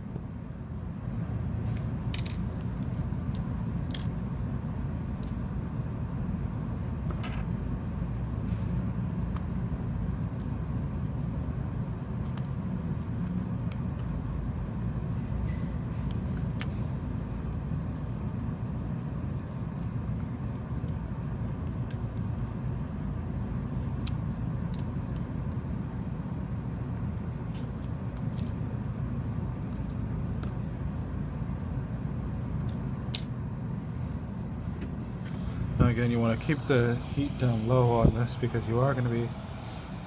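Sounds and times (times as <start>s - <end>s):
heat gun blowing: 35.3s - 40.0s.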